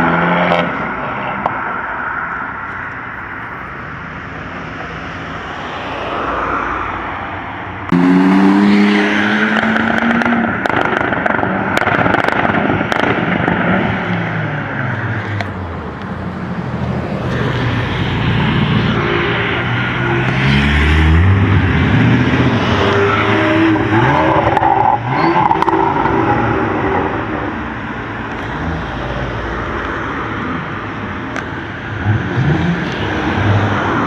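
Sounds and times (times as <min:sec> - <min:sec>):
car engines accelerating hard: 0:04.5 - 0:34.0
exhaust cracks: 0:09.5 - 0:14.3.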